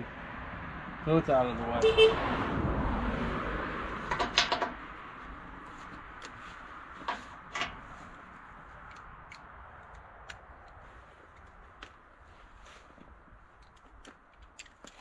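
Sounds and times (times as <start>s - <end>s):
wrench clinking and knocking on metal: 4.1s - 4.8s.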